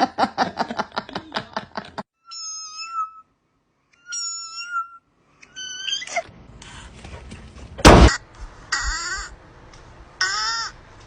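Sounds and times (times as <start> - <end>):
cat meowing: 2.2 - 3.3, 4.0 - 6.2.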